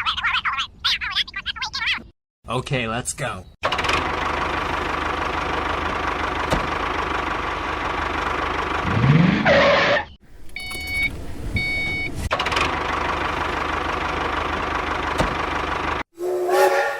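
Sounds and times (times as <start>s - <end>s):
tractor engine running: 3.6s - 9.4s, 10.2s - 16.0s.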